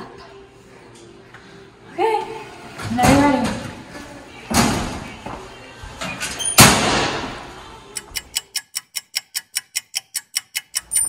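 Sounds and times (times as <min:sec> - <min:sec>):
metal locker door slamming: 0:06.2 - 0:07.4
clock ticking: 0:07.9 - 0:11.0.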